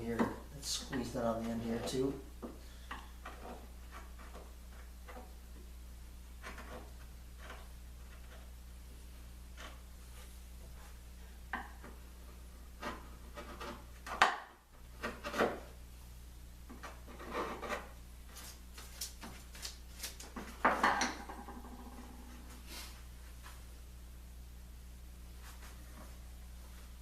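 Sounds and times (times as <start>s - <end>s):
steady low hum: 0.0s - 27.0s
tools knocking on wood: 20.5s - 22.2s.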